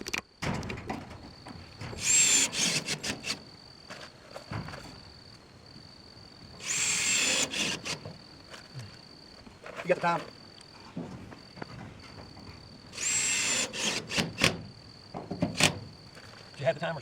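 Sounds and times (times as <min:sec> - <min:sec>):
high insect trill: 0:00.0 - 0:17.0
power screwdriver whining: 0:02.0 - 0:03.4, 0:06.6 - 0:08.1, 0:13.0 - 0:14.6.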